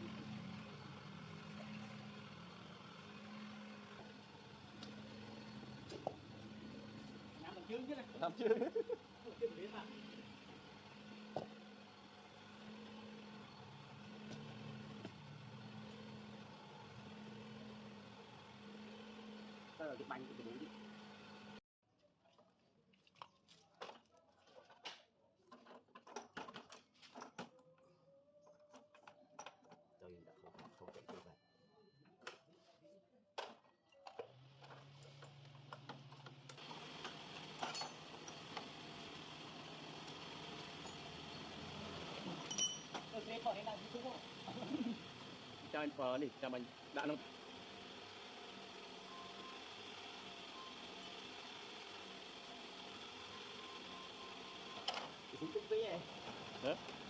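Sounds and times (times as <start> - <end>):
idling motor hum: 0.0 - 21.6, 34.3 - 57.0.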